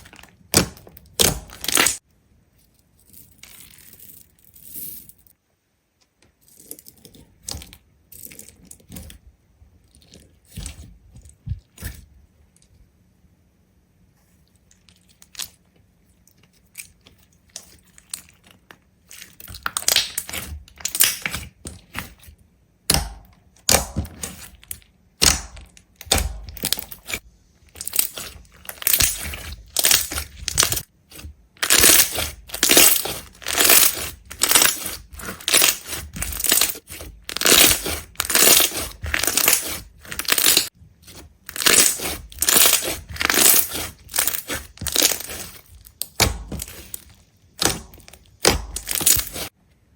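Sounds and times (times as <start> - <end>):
brittle crunching: 0.0 - 2.0, 14.6 - 22.3, 23.6 - 49.5.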